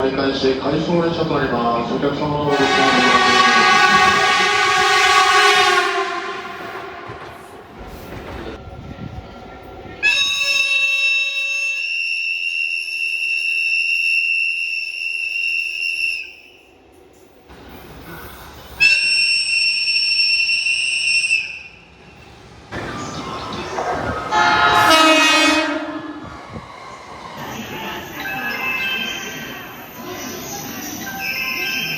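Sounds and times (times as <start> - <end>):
train horn blasts: 2.4 - 8.3, 23.8 - 28.2.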